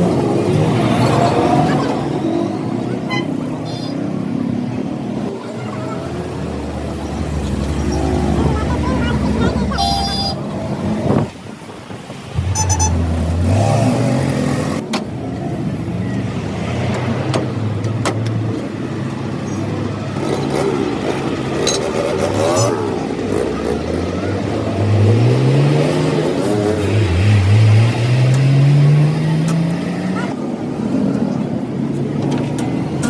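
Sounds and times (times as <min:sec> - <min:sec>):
vehicle engine revving: 0:12.4 - 0:14.9, 0:19.7 - 0:30.4.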